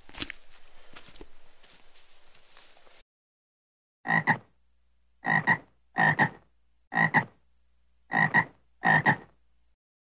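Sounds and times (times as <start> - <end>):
frog croaking: 4.0 - 4.5, 5.2 - 7.4, 8.1 - 9.4.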